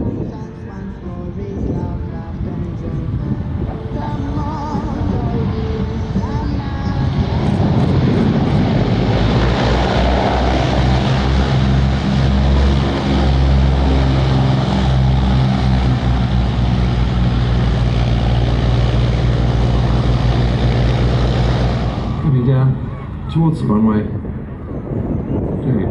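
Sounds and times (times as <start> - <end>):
propeller aircraft engines droning: 0.0 - 25.9
rushing air noise: 1.6 - 25.9.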